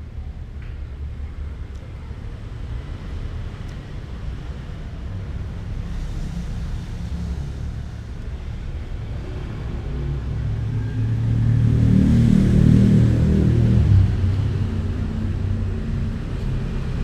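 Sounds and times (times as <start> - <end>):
vehicle engine rumble passing: 0.8 - 17.0.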